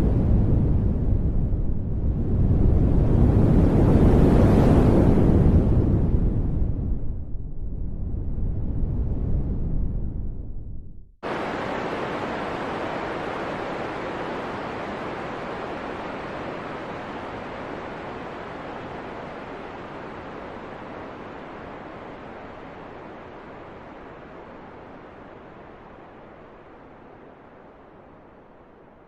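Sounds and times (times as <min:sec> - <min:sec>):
deep low rumble: 0:06.2 - 0:11.2
rushing hiss of wind: 0:11.2 - 0:28.6.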